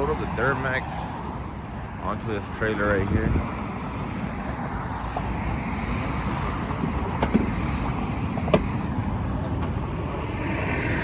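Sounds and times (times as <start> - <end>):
rushing road noise: 0.0 - 11.0
wind buffeting microphone: 2.9 - 11.0
short knocks: 6.8 - 9.6.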